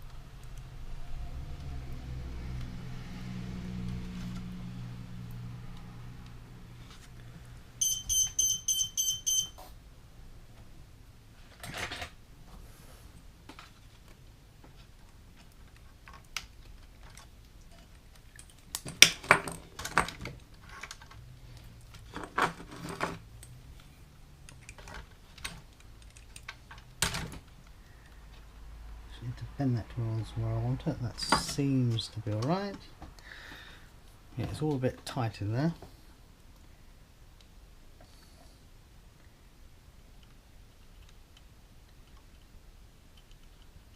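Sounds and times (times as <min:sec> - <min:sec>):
electronic beeps: 0:07.8 - 0:09.6.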